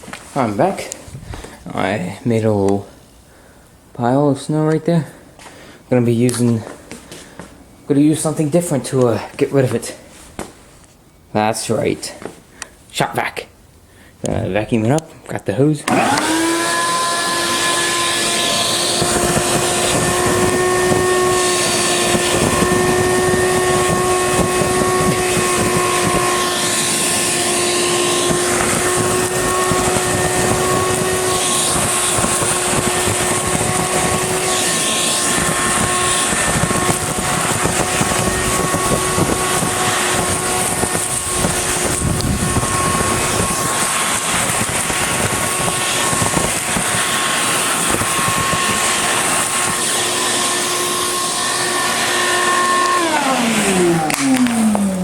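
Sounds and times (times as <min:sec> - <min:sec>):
rushing air: 0:00.0 - 0:01.9, 0:16.0 - 0:55.0
shop vac motor whine: 0:15.8 - 0:55.0.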